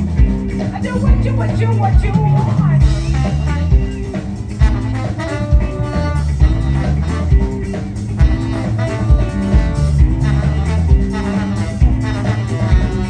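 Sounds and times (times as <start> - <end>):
bass guitar: 0.0 - 13.0
drum kit beat: 0.0 - 13.0
electric guitar: 0.0 - 13.0
sax and trombone horn lines: 2.8 - 13.0.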